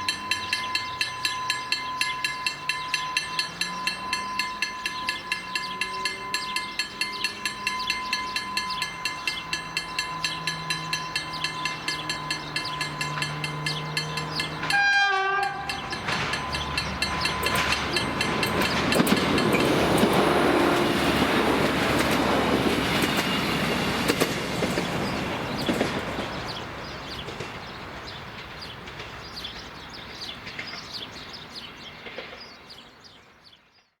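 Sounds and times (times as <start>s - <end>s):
crossing warning signal ringing: 0.0s - 31.9s
train wheels clickety-clack: 0.0s - 32.8s
diesel train engine: 0.0s - 33.4s
train horn blast: 14.6s - 16.3s, 20.0s - 21.4s.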